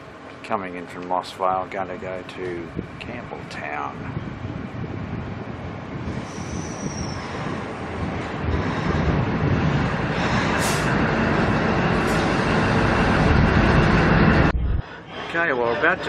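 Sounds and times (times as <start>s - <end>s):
diesel train running: 0.0s - 16.0s.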